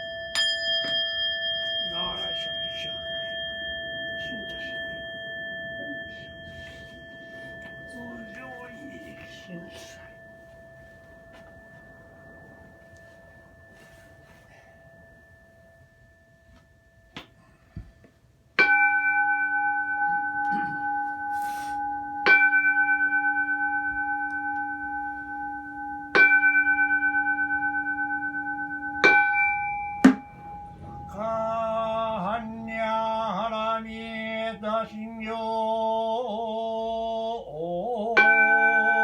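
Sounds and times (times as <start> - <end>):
bowl bell ringing: 0.0 - 17.2, 18.6 - 35.3, 38.2 - 39.0
man chanting: 1.9 - 6.7, 7.7 - 10.3, 30.7 - 38.6
short sharp knock: 30.0 - 30.3.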